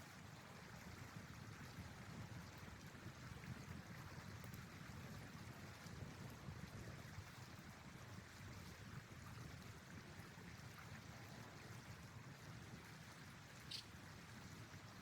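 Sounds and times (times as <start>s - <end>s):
faint steady hiss: 13.2s - 15.0s
faint ticks: 13.6s - 13.9s.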